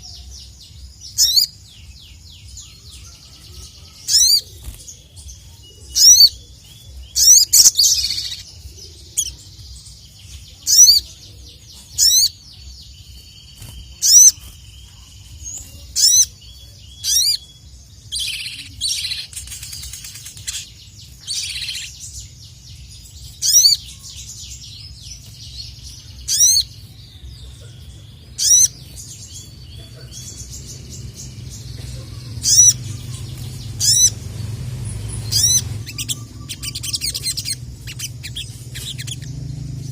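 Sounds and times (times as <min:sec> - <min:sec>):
steady low hum: 0:00.0 - 0:39.9
bird whistling and chattering: 0:01.1 - 0:01.6, 0:04.0 - 0:04.7, 0:05.8 - 0:06.5, 0:07.1 - 0:09.4, 0:10.6 - 0:11.1, 0:12.0 - 0:12.4, 0:13.6 - 0:14.6, 0:15.6 - 0:16.4, 0:17.0 - 0:22.0, 0:23.4 - 0:24.1, 0:26.3 - 0:26.7, 0:28.3 - 0:28.9, 0:31.6 - 0:39.6.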